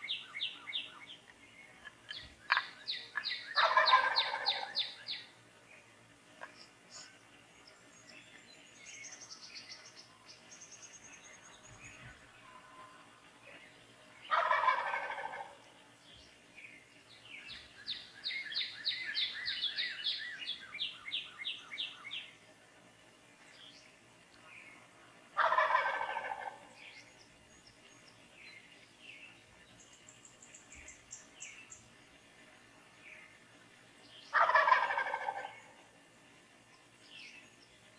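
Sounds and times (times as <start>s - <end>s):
turkey gobbling: 2.1s - 5.2s, 14.3s - 15.8s, 25.4s - 26.8s, 34.3s - 35.9s.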